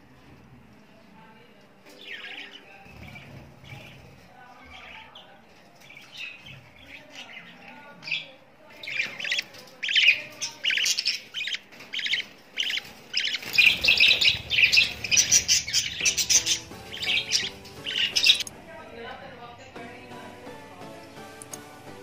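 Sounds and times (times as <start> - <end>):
budgerigars chirping: 2.0 - 18.5.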